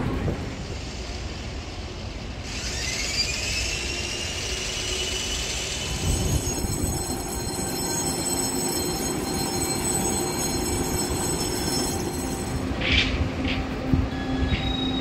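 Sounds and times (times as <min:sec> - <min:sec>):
train low rumble: 0:00.0 - 0:02.6, 0:03.4 - 0:15.0
thin high whines: 0:02.6 - 0:13.0
brief high squeal: 0:02.7 - 0:12.2, 0:14.1 - 0:15.0.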